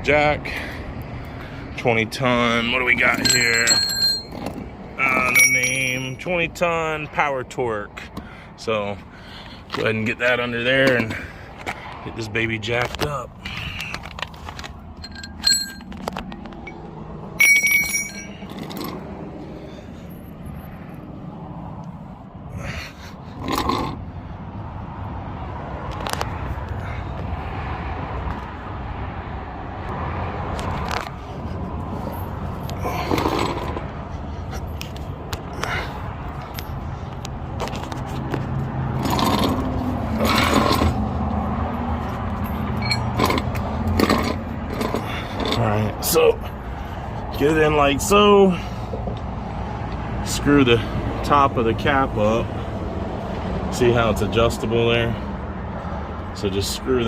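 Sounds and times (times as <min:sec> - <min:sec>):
metal clinks: 0:02.9 - 0:06.2, 0:15.0 - 0:16.8, 0:17.4 - 0:19.0, 0:42.4 - 0:45.0
metal jack scraping and clanking: 0:02.9 - 0:06.2, 0:12.9 - 0:16.8, 0:17.4 - 0:19.0, 0:32.0 - 0:33.9, 0:39.0 - 0:41.0, 0:42.4 - 0:45.8
ringing metal clang: 0:03.1 - 0:04.5, 0:05.2 - 0:06.2, 0:15.0 - 0:16.0, 0:17.4 - 0:18.4.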